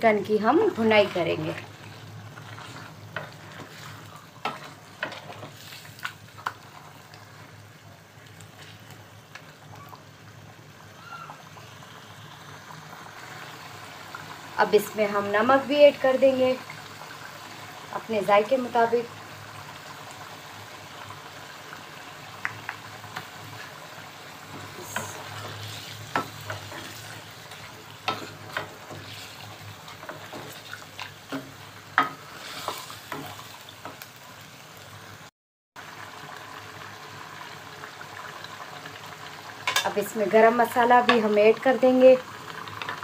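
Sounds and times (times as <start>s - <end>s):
food sizzling in a metal pot: 0.0s - 43.0s.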